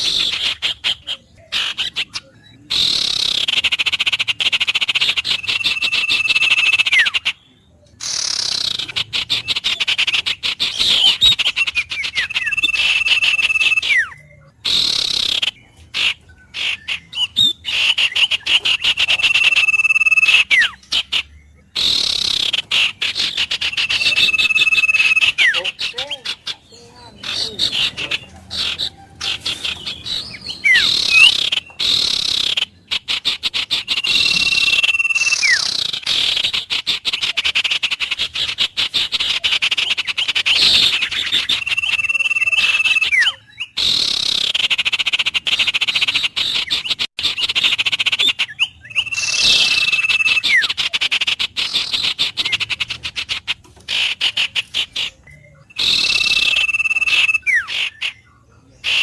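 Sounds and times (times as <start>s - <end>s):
wild birds chattering: 0.0s - 59.0s
held bird whistle note: 17.4s - 20.8s, 23.6s - 25.7s, 33.9s - 36.3s, 55.8s - 57.7s.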